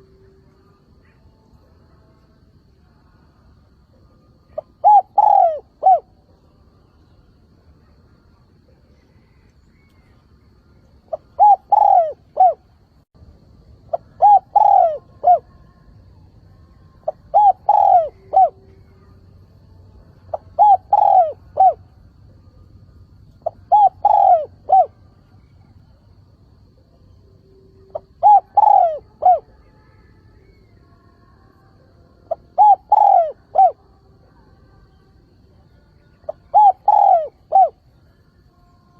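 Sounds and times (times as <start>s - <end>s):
dove cooing: 4.4s - 6.4s, 11.1s - 12.7s, 13.9s - 15.6s, 17.0s - 19.2s, 20.3s - 21.9s, 23.4s - 25.8s, 27.8s - 29.6s, 32.3s - 33.8s, 36.2s - 37.8s.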